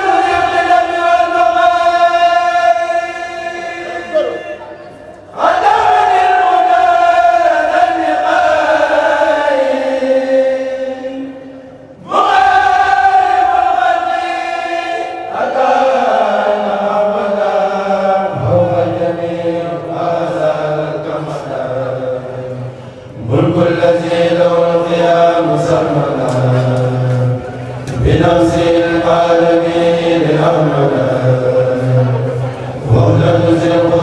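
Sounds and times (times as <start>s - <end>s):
group of voices chanting: 12.0s - 34.0s.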